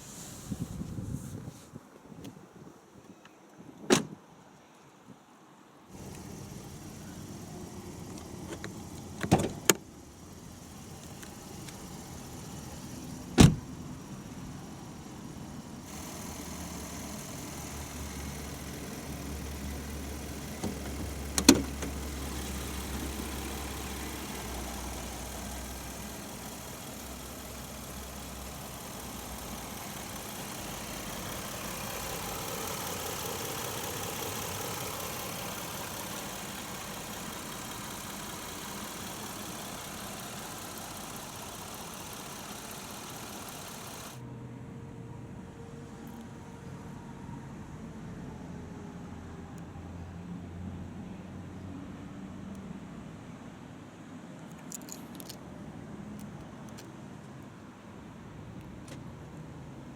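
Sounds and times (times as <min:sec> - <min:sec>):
heavy car door thuds: 0:13.3 - 0:13.7.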